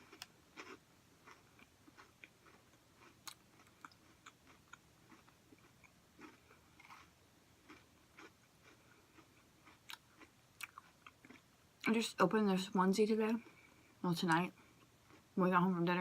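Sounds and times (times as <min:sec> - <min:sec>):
person chewing: 0:00.0 - 0:11.5.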